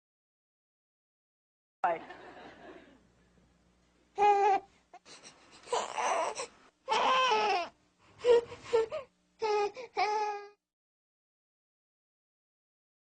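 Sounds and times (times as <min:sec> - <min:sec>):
infant crying: 0:04.2 - 0:10.6.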